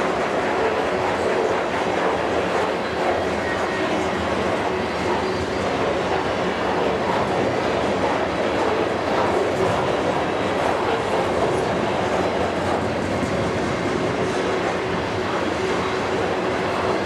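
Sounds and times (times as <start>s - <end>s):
train wheels clattering on rails: 0.0s - 17.0s.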